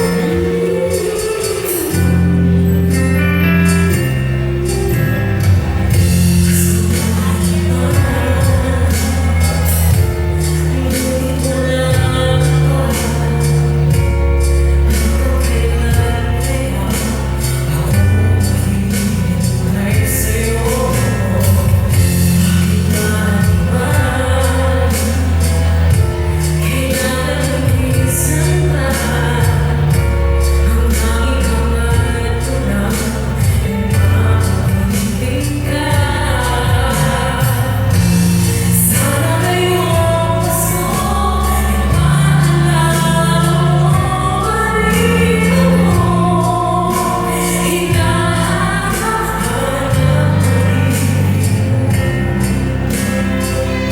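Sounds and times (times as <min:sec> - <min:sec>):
amplified backing music: 0:00.0 - 0:53.9
woman singing: 0:00.0 - 0:53.9.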